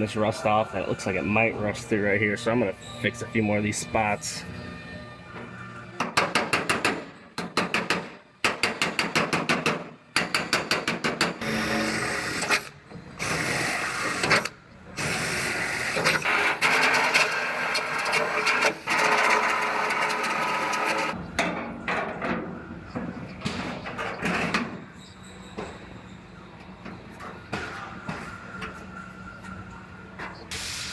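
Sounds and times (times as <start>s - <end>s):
power tool steady noise: 11.4s - 21.2s.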